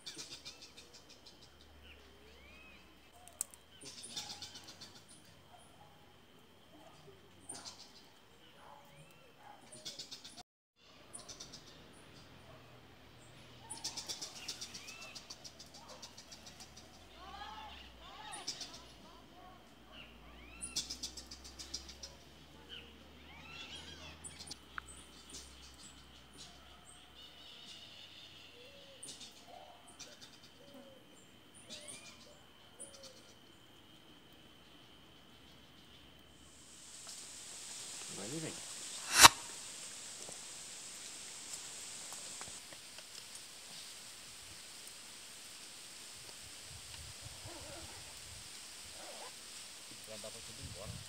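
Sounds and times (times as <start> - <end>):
short low bird calls: 39.0 - 39.5.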